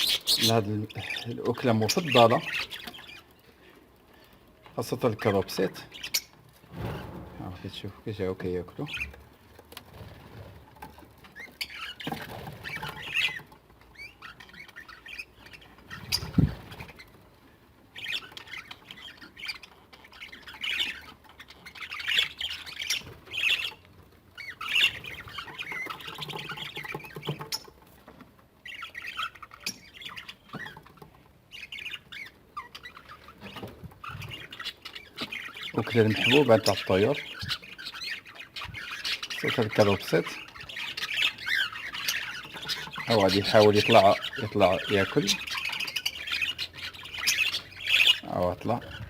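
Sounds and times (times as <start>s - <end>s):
birds squawking and chattering: 0.0s - 49.0s
thump: 6.7s - 7.4s.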